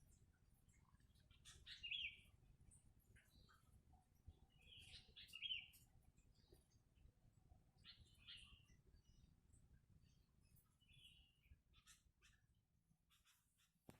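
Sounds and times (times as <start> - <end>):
faint bird chirps: 0.8 - 2.4, 4.3 - 6.8, 7.8 - 9.3, 10.0 - 13.9.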